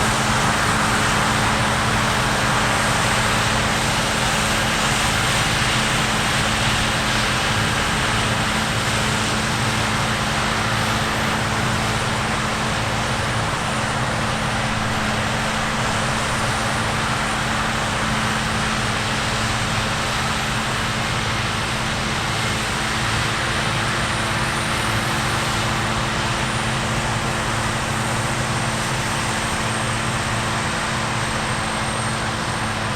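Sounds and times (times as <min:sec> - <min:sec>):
diesel machinery droning: 0:00.0 - 0:32.9.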